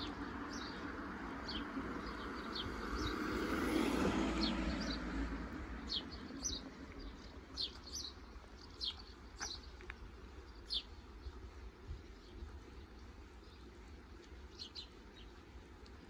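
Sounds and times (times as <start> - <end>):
passing car road noise: 0.0 - 8.1
small birds chirping: 0.0 - 16.0.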